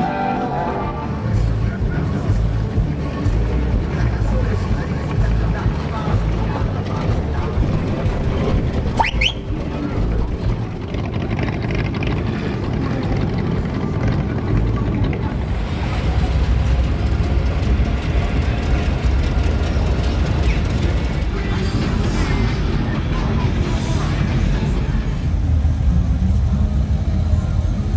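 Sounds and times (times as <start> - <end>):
car engines cruising past: 0.0 - 27.9
short rising whistle: 8.9 - 9.7.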